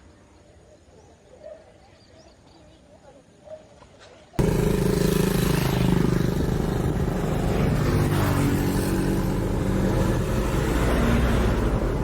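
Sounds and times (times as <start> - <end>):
vehicle engine running: 4.4 - 12.0.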